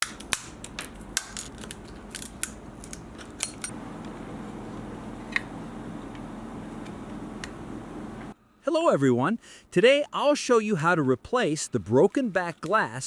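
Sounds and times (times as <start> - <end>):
hand tools clicking and tapping: 0.0 - 3.8
steady low hum: 0.0 - 8.4.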